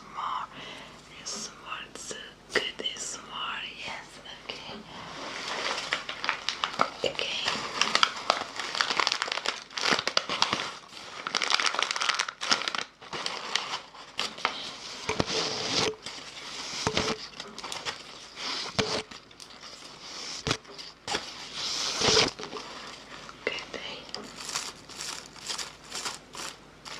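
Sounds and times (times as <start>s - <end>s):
close crinkling and crackling: 4.6s - 26.9s.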